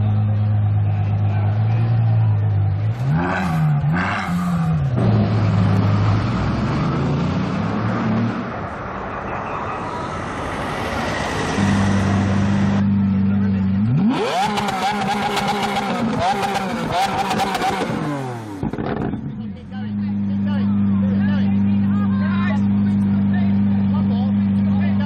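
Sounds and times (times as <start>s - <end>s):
street traffic: 0.0s - 25.0s.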